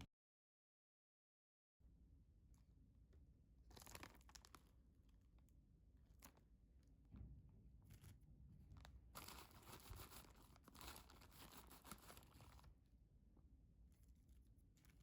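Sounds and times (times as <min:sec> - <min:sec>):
plastic bag crinkling: 0:03.7 - 0:04.7, 0:08.8 - 0:12.7.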